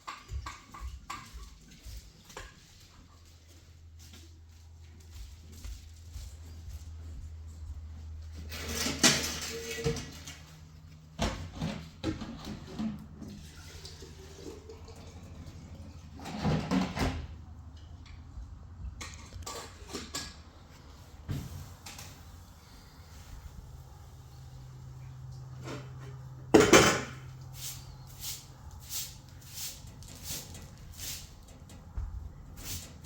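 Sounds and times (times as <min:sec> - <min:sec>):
dishes knocking: 0:26.5 - 0:27.2.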